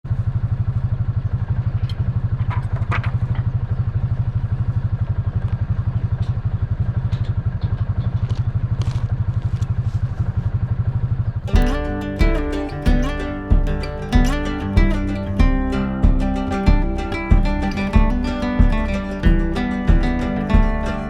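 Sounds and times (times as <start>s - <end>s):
tractor diesel engine running: 11.6s - 21.0s.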